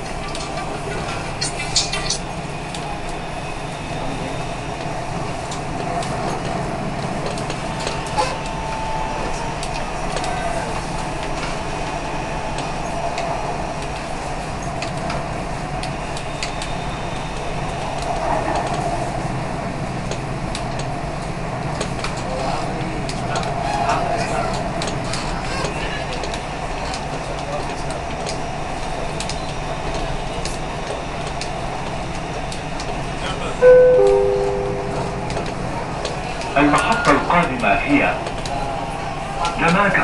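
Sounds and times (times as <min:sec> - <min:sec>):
train rumble and hum: 0:00.0 - 0:40.0.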